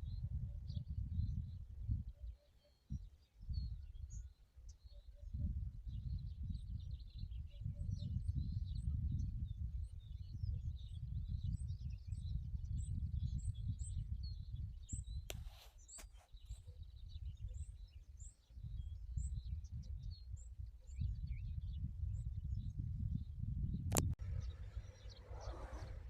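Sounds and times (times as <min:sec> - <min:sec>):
small birds chirping: 0:00.0 - 0:26.0
low rumble: 0:24.1 - 0:26.0.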